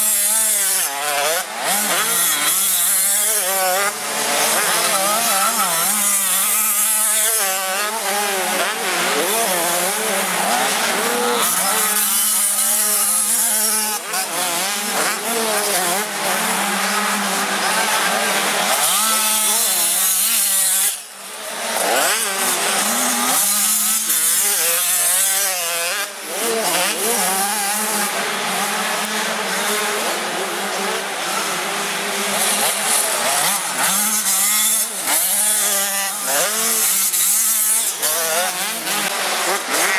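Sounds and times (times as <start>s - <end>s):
motocross bikes revving: 0.0s - 39.9s.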